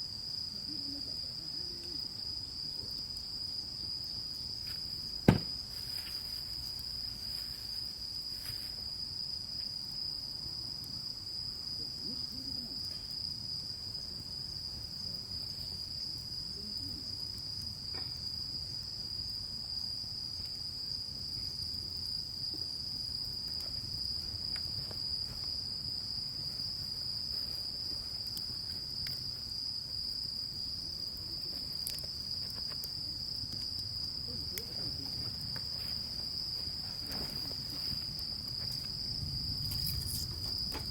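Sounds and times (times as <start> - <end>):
crickets trilling: 0.0 - 40.9
faint ticks: 28.2 - 29.2.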